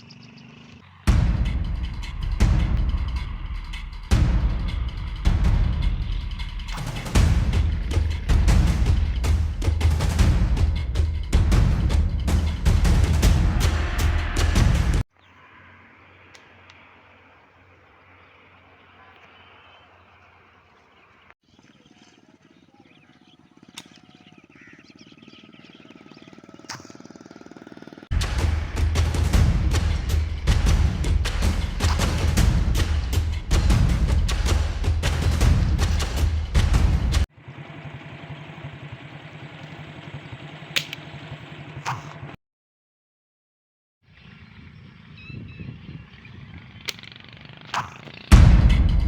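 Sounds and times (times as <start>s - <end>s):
small birds chirping: 0.0s - 2.5s, 15.1s - 28.1s, 44.1s - 48.4s
rapid low pulsing: 0.0s - 15.0s, 24.4s - 40.5s, 48.3s - 49.0s
percussive music: 1.1s - 15.0s, 28.1s - 37.3s, 48.3s - 49.0s
sharp clicks: 46.8s - 48.2s.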